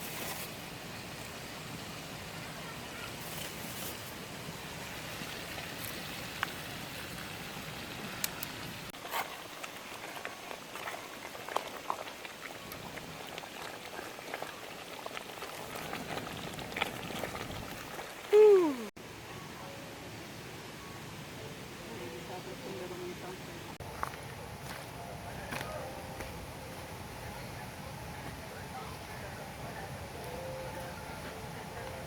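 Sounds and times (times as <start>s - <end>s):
food sizzling over wood fire: 0.0s - 18.9s
fire pops and crackles: 5.0s - 18.4s.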